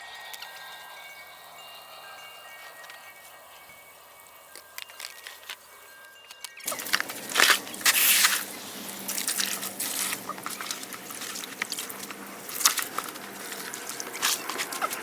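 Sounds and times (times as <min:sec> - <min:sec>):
hose water splashing: 0:06.6 - 0:15.0.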